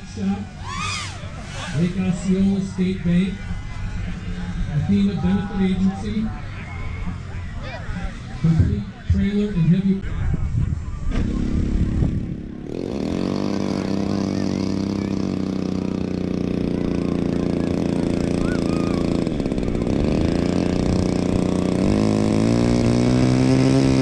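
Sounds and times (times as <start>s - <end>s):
model airplane engine: 0.0s - 5.0s, 11.3s - 24.0s.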